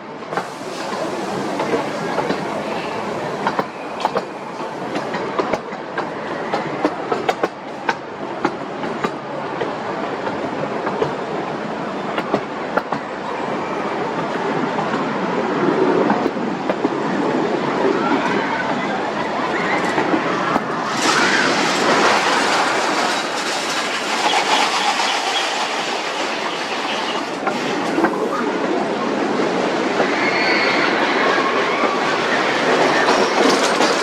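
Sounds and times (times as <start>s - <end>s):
train wheels rumbling on rail: 0.0s - 34.0s
wheels clicking over rail joints: 0.3s - 11.2s, 19.5s - 28.5s, 30.0s - 34.0s.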